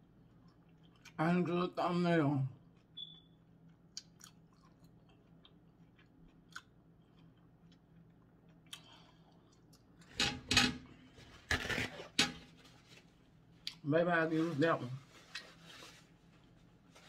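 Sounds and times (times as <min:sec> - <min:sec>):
mouth chewing wet clicks: 0:02.7 - 0:09.9
paper towels rustling: 0:11.1 - 0:13.4, 0:14.0 - 0:17.0.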